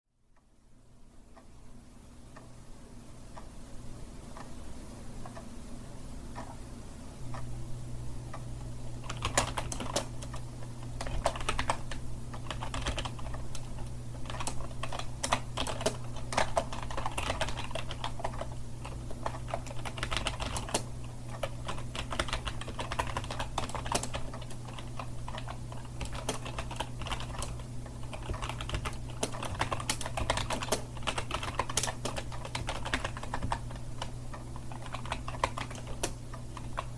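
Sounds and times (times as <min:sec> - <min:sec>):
steady low hum: 0:00.1 - 0:36.9
computer keyboard typing: 0:09.0 - 0:36.9.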